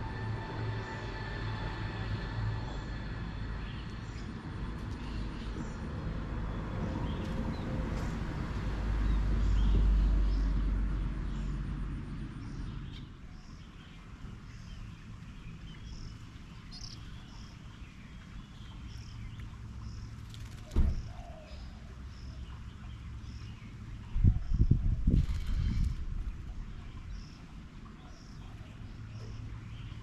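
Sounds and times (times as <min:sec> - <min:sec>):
distant engine rumble: 0:00.0 - 0:30.0
small birds chirping: 0:12.3 - 0:30.0
thump: 0:20.7 - 0:21.2.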